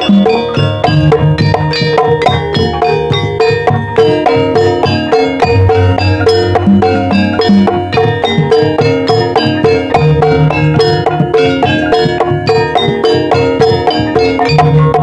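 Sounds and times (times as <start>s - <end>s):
gamelan music: 0.0s - 15.0s
low sustained tone: 4.4s - 12.6s.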